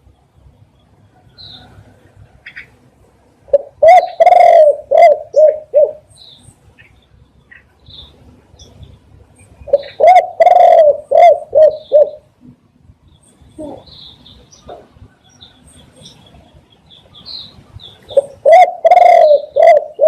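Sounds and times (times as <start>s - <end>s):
small birds chirping: 0.0s - 2.9s, 3.5s - 20.0s
dove cooing: 3.5s - 6.1s, 9.7s - 12.3s, 18.1s - 20.0s.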